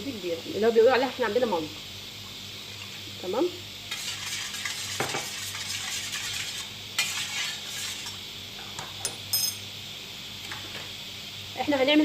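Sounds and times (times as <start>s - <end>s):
utensil scraping dough in bowl: 3.9s - 8.2s
light metallic clinks: 9.0s - 9.6s.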